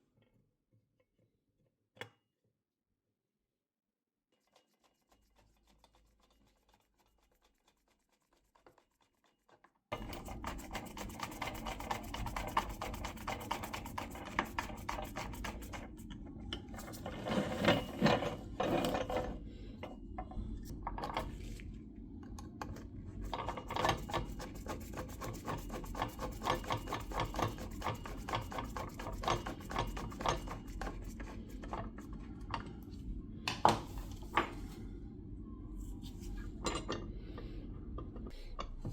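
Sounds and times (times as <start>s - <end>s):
rubbing and scraping with clicks: 4.4s - 19.4s.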